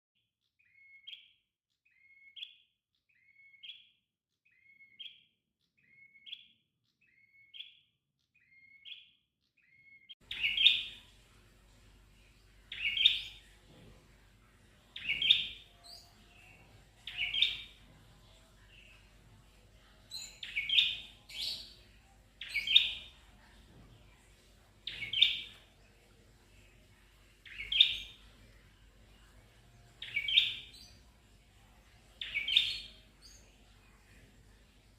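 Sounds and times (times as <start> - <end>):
bird singing repeated phrase: 0.6 - 11.0, 12.7 - 13.5, 15.0 - 19.1, 19.8 - 21.8, 22.4 - 23.3, 24.8 - 25.7, 27.4 - 28.3, 29.8 - 31.1, 32.2 - 33.6
faint background hiss: 10.2 - 34.9.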